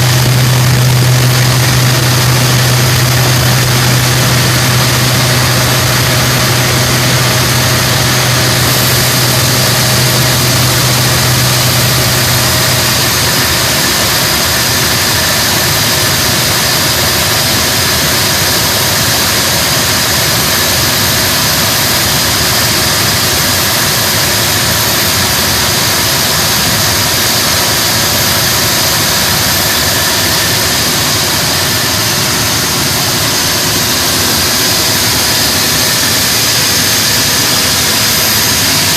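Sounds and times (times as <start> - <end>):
low hum: 0.0 - 21.6
engine running steadily: 0.0 - 38.9.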